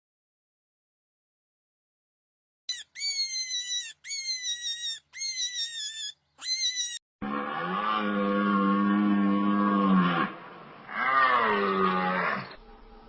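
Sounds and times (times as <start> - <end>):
high-pitched wavering animal calls: 2.7 - 7.0.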